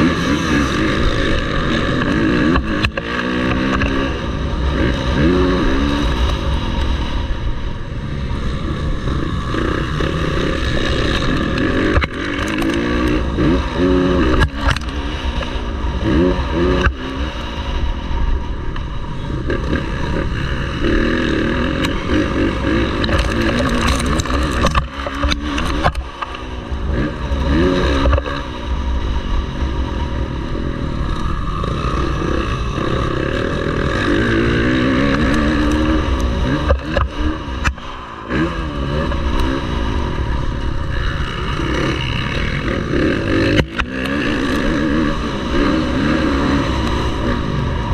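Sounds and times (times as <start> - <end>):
motocross bike engine revving: 0.0 - 47.9
sharp knocks and clatter: 22.8 - 26.4.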